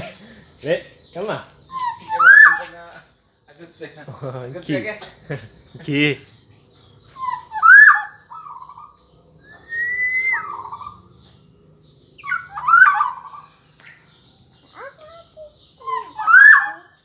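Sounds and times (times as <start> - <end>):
bird singing fluting whistles: 1.7 - 2.8, 7.1 - 11.2, 12.2 - 14.0, 15.8 - 17.0.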